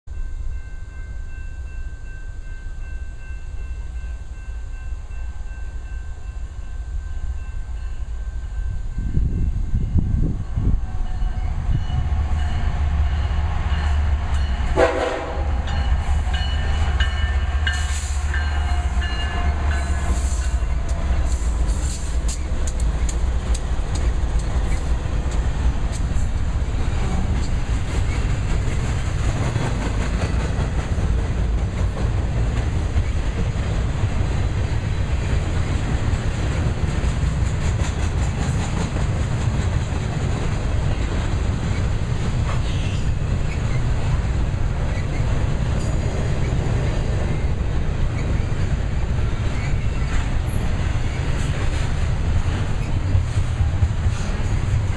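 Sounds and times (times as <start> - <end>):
diesel locomotive deep rumble: 2.0 - 54.9
multi-tone train horn: 8.3 - 22.2
wheels clattering over rail joints: 36.0 - 54.9.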